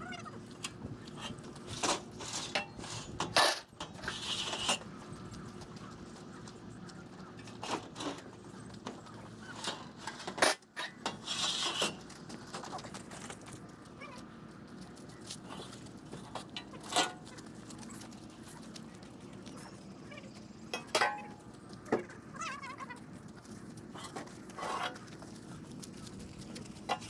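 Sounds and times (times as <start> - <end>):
metal tools clinking and knocking: 20.7 - 21.5.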